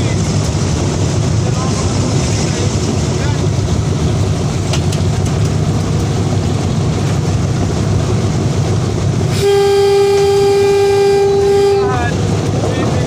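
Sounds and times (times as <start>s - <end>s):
train rumbling: 0.0s - 13.0s
train horn long note: 9.3s - 12.2s.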